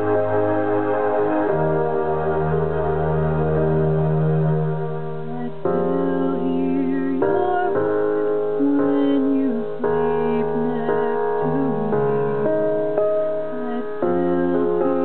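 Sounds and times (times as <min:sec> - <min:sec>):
piano ballad chords: 0:00.0 - 0:15.0
woman singing: 0:05.3 - 0:15.0.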